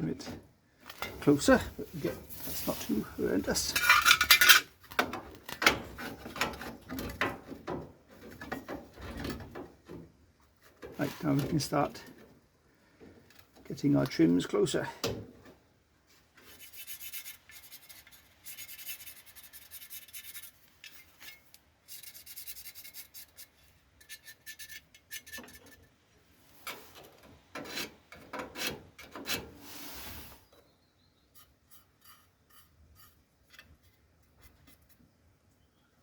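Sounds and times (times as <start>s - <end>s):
metal scraping on metal: 1.0s - 4.8s, 16.4s - 30.4s.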